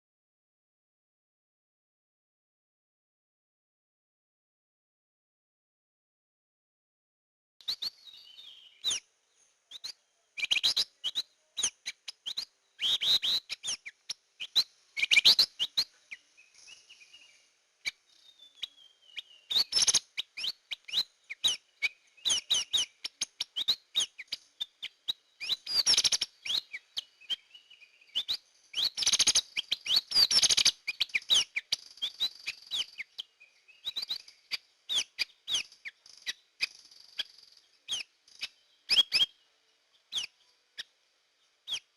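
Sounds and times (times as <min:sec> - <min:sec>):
bird clicking chirps and whistles: 0:09.7 - 0:15.9, 0:19.5 - 0:27.4, 0:28.2 - 0:37.3, 0:37.9 - 0:39.3.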